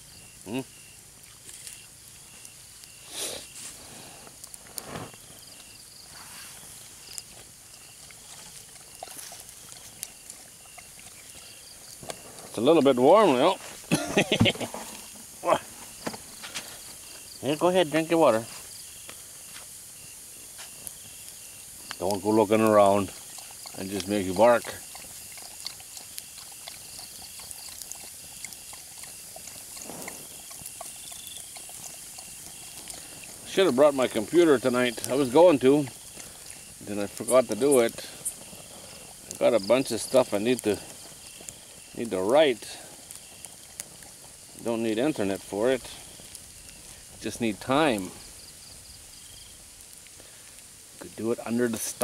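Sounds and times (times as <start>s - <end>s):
campfire crackling: 0.0s - 52.0s
insects chirping: 0.0s - 52.0s
breathy animal sound: 2.9s - 6.8s, 7.7s - 12.6s, 24.7s - 33.6s, 35.8s - 37.0s, 38.0s - 39.4s, 42.6s - 44.6s, 45.9s - 47.2s.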